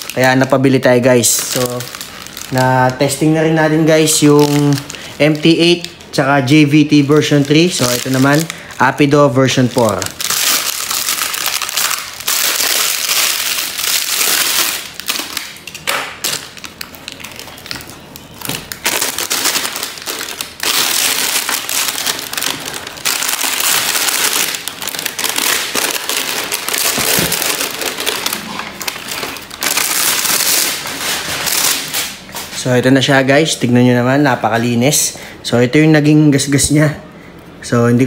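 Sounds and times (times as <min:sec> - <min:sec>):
plastic wrapping crinkling: 0:00.0 - 0:34.3.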